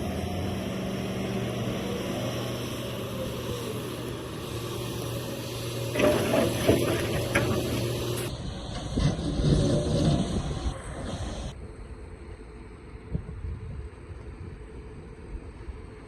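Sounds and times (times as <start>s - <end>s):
excavator engine running: 0.0s - 11.6s
knocks and rattles of bucket: 5.9s - 7.9s.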